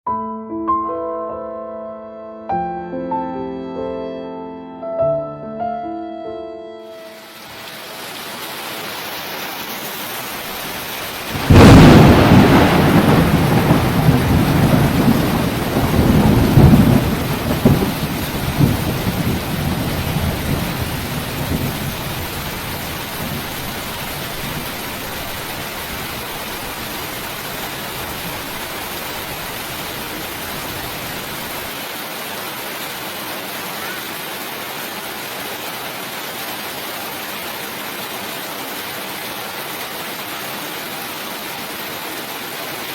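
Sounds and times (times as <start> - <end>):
steady rain: 7.0 - 42.9
thunder rumbling: 11.1 - 31.7.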